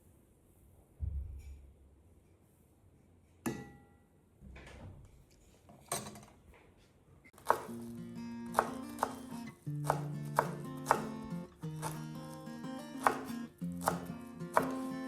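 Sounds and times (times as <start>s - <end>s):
dishes and utensils handled: 5.6s - 6.4s.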